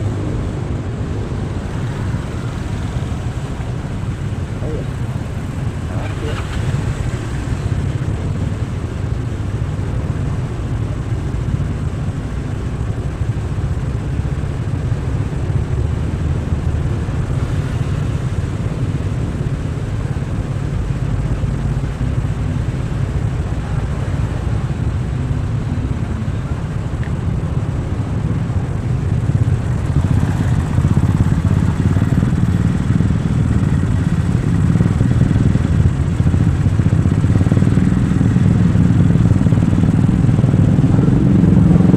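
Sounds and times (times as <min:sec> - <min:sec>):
motorcycle engine running: 0:00.0 - 0:41.9
road noise: 0:00.0 - 0:41.9.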